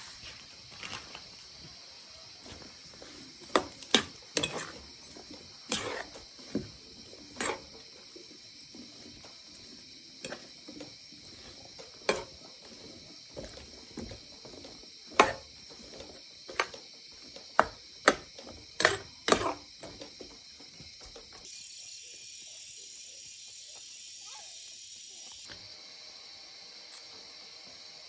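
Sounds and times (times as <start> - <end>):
high-pitched insect drone: 19.6 - 28.0.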